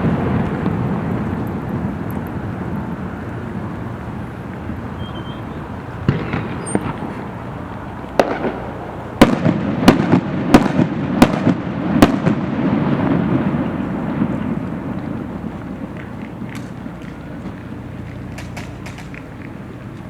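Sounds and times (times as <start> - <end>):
rolling rumble: 0.0 - 20.0
firework shells bursting: 4.9 - 20.0.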